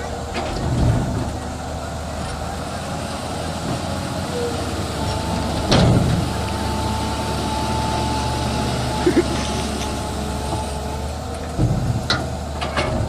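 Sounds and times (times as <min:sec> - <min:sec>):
diesel engine running: 0:00.0 - 0:13.0
machine clunk: 0:05.6 - 0:06.3, 0:11.4 - 0:13.0.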